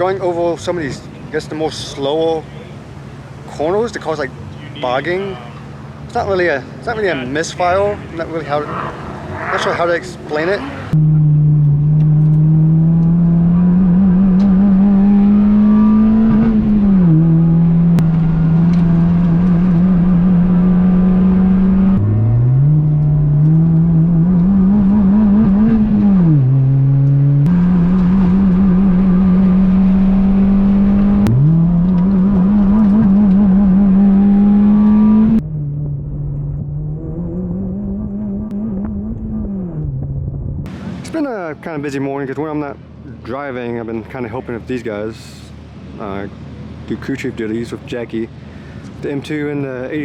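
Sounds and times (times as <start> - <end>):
car engine revving at high revs: 8.8 - 40.3.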